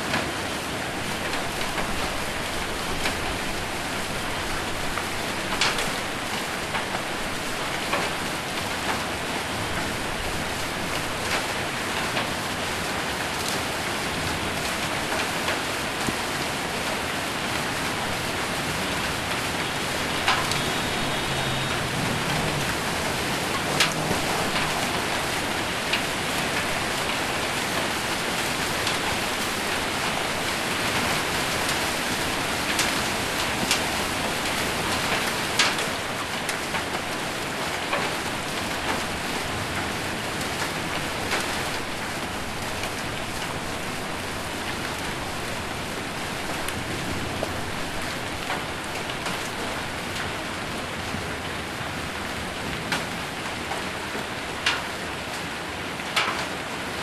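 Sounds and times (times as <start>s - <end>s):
heavy rain on a metal roof: 0.0s - 57.0s
hailstones cracking: 14.4s - 50.4s.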